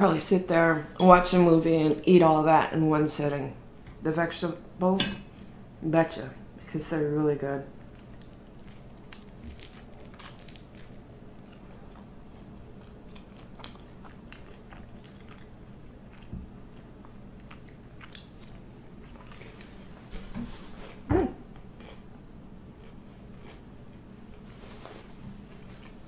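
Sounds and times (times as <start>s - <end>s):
crunchy food crunching: 7.8s - 19.8s.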